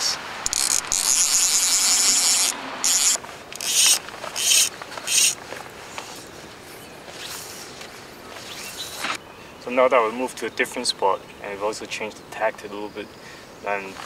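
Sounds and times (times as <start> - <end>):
fishing reel ratchet clicking: 0.5 - 5.4.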